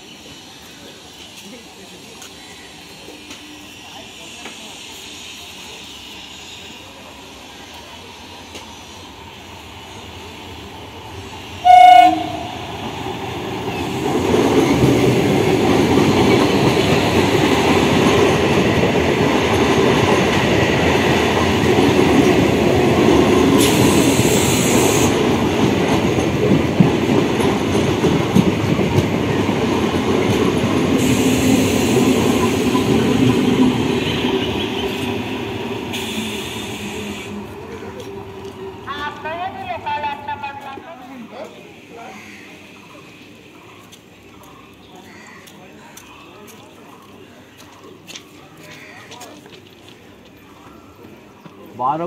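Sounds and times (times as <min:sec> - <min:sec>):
train rumbling past: 0:00.0 - 0:44.4
train horn blast: 0:11.6 - 0:12.7.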